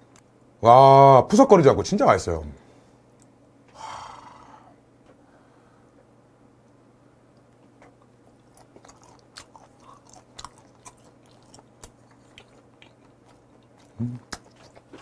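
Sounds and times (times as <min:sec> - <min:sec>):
mouth chewing clicks: 0:07.4 - 0:15.0.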